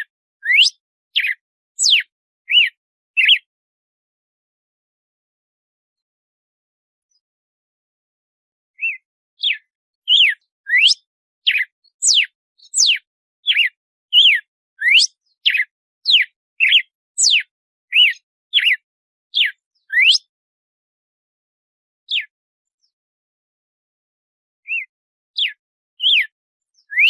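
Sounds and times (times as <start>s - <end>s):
bird singing whistled notes: 0.0s - 3.5s, 8.8s - 20.3s, 22.1s - 23.0s, 24.7s - 27.0s.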